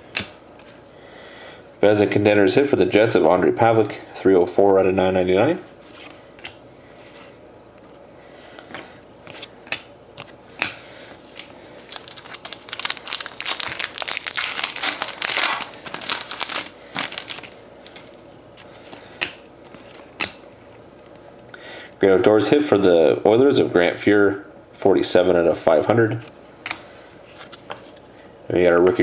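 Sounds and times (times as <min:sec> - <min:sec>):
foil wrapper tearing and crinkling: 0:11.2 - 0:18.1.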